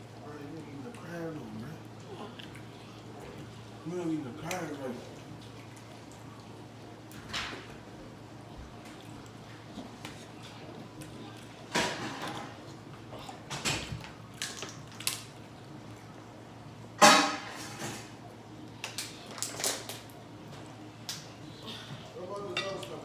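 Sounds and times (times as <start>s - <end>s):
clicks and crackles of seafood shells: 11.0s - 15.8s, 18.7s - 20.3s.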